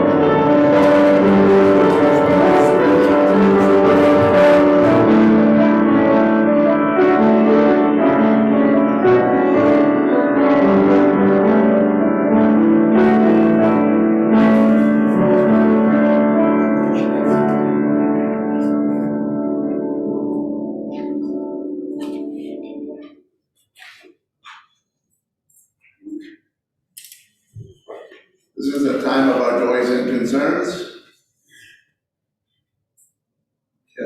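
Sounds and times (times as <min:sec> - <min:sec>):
slow piano music: 0:00.0 - 0:23.3.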